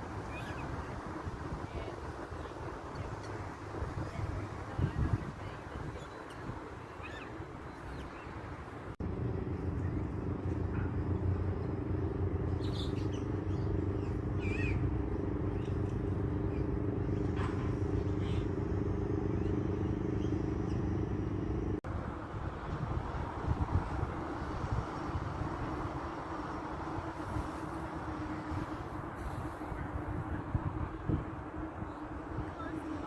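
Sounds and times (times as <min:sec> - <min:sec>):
low engine hum: 0:00.0 - 0:33.0
bird chirps: 0:12.5 - 0:14.9.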